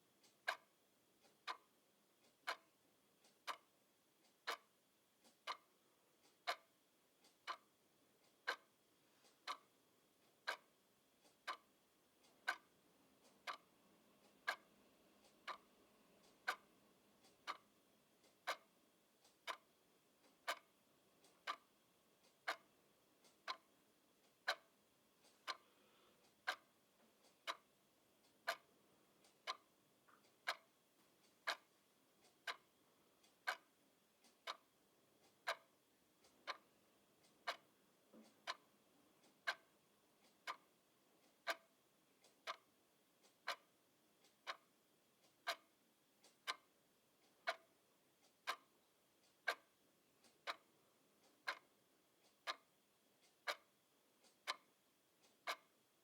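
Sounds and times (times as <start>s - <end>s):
clock ticking: 0.0s - 56.0s.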